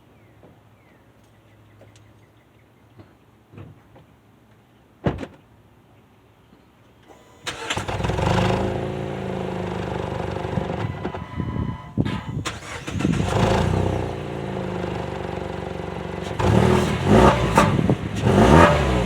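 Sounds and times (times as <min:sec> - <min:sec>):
car engine cranking and idling: 0:07.1 - 0:19.0.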